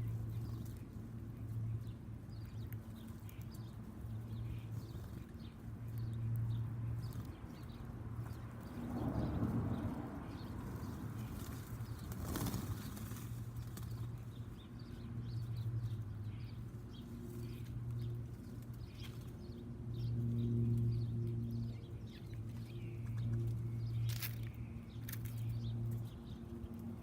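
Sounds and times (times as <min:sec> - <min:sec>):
songbirds chirping: 0:00.0 - 0:27.0
steady low hum: 0:00.0 - 0:27.0.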